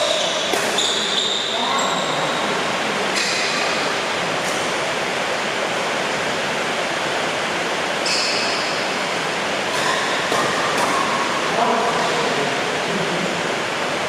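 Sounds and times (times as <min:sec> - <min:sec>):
brief high squeak: 0:00.0 - 0:02.0.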